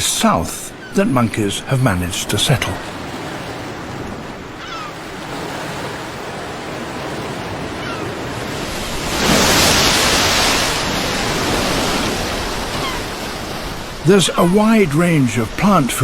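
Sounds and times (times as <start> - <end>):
ocean surf washing: 0.0 - 16.0
wave breaking: 0.0 - 16.0.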